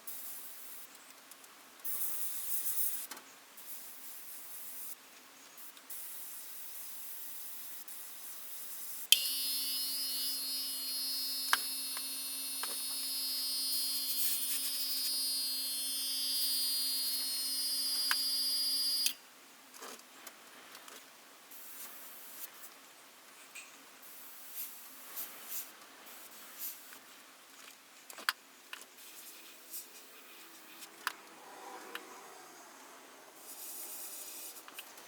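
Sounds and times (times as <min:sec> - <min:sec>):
airbrush spraying hisses: 0:05.6 - 0:19.1, 0:24.0 - 0:27.0, 0:33.4 - 0:34.7
air compressor humming and whining: 0:09.1 - 0:19.2.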